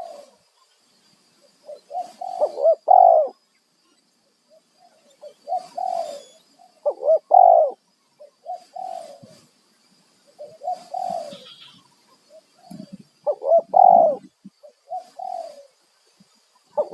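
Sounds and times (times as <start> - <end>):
dove cooing: 0.0 - 0.4, 1.6 - 3.4, 4.8 - 9.5, 10.3 - 15.8.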